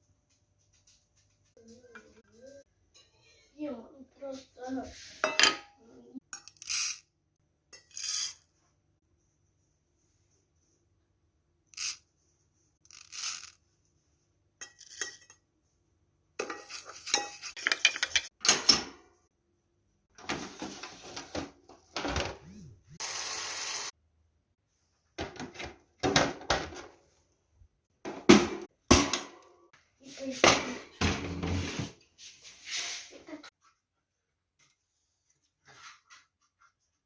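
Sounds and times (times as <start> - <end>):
dishes clinking and clattering: 5.2 - 5.8, 16.4 - 19.1.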